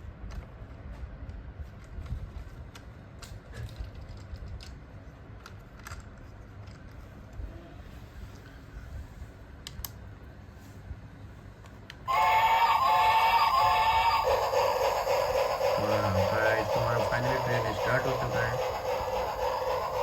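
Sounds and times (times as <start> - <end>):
light clicks and clatters: 0.3 - 7.4
toy train motor rumble: 12.1 - 20.0.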